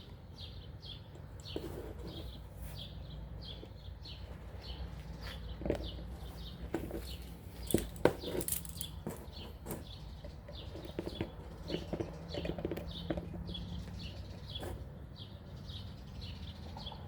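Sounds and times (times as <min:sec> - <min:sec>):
small birds chirping: 0:00.0 - 0:17.0
handling clicks and knocks: 0:05.5 - 0:14.7.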